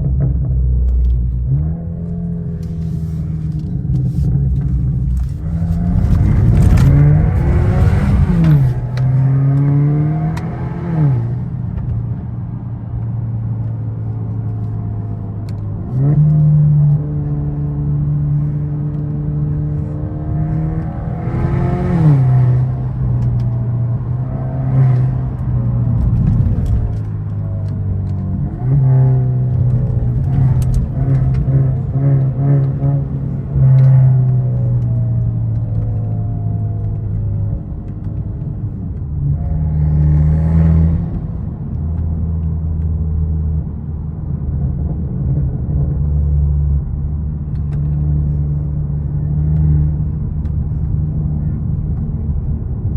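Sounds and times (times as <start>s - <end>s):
car engine accelerating: 0.0s - 52.9s.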